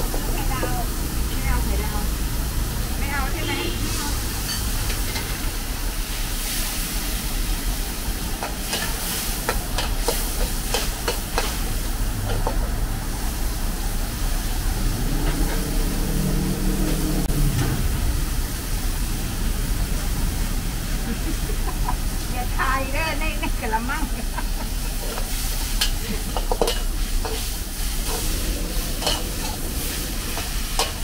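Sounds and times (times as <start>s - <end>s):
food sizzling in a wok: 0.0s - 31.0s
low drone: 12.8s - 22.4s.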